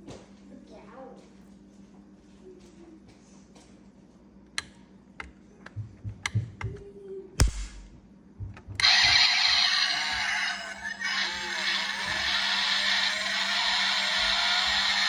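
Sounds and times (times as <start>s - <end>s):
loud steady hissing: 11.0s - 15.0s.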